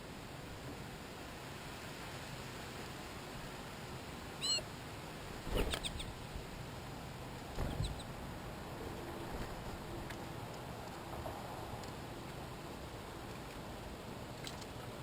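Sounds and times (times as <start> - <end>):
short animal calls: 4.4 - 4.7, 5.5 - 6.2, 7.6 - 8.1.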